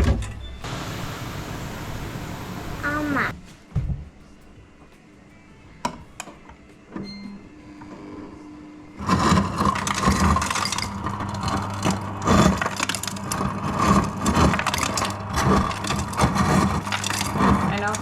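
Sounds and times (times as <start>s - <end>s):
fridge dispenser humming: 0.0s - 3.3s, 8.9s - 18.0s
ice crunching and rattling: 9.0s - 18.0s.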